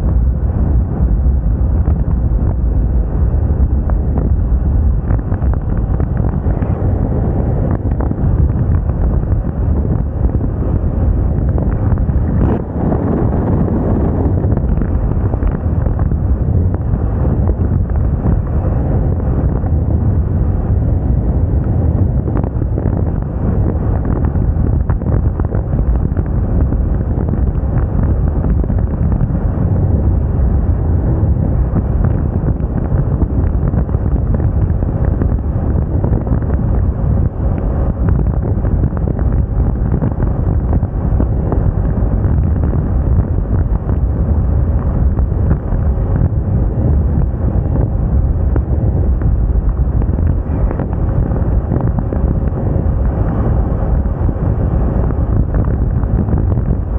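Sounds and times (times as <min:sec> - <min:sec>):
road noise: 0:00.0 - 0:56.9
wind noise on microphone: 0:00.0 - 0:56.9.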